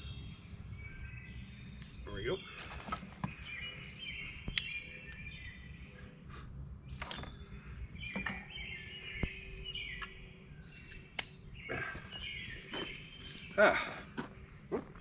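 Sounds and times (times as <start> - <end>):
birds chirping: 0.0 - 15.0
insect trill: 0.0 - 15.0
sharp clicks: 4.5 - 5.2.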